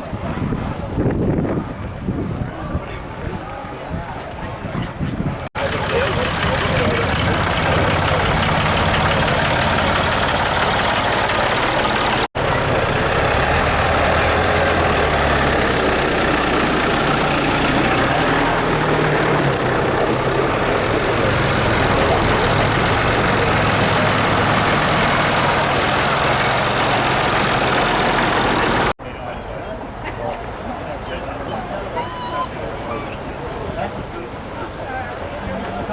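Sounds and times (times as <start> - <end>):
tractor and car engines idling: 5.6 - 29.0.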